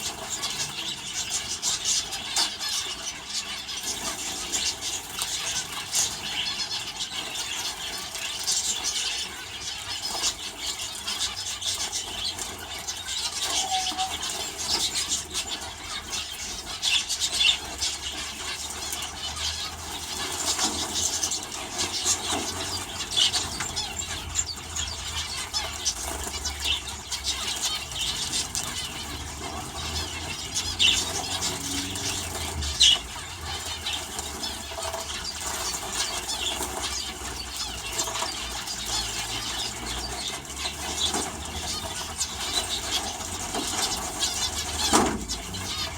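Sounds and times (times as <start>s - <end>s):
finches and canaries chirping: 0.0s - 45.9s.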